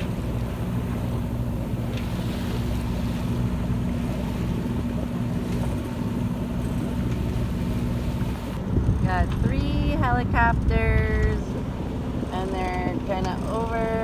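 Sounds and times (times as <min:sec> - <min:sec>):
boat engine humming: 0:00.0 - 0:14.0
wind noise: 0:08.3 - 0:13.0.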